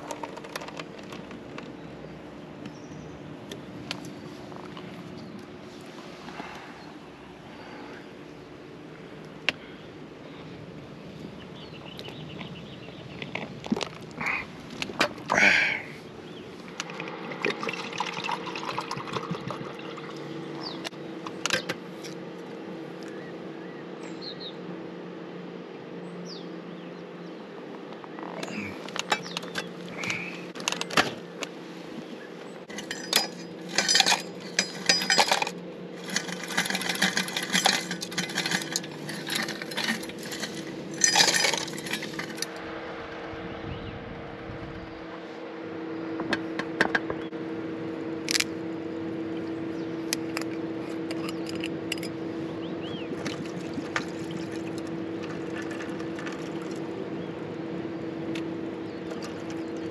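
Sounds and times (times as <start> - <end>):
steady low hum: 0.0 - 59.9
small hard objects clinking: 32.7 - 42.6.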